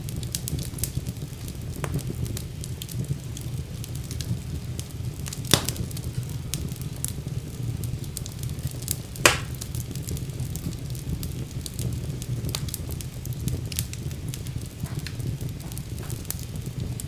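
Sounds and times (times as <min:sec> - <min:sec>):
fire crackling: 0:00.0 - 0:17.0
sharp fire pops: 0:00.0 - 0:17.0
wood fire rumbling: 0:00.0 - 0:17.0.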